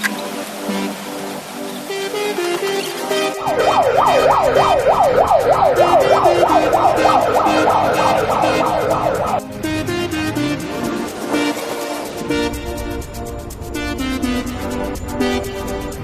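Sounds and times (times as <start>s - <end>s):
background music with beat: 0.0s - 16.0s
siren yelping: 3.0s - 9.5s.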